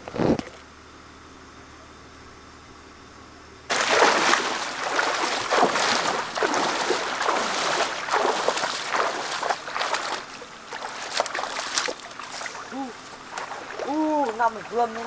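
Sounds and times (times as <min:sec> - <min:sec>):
water splashing and sloshing: 0:03.7 - 0:15.0.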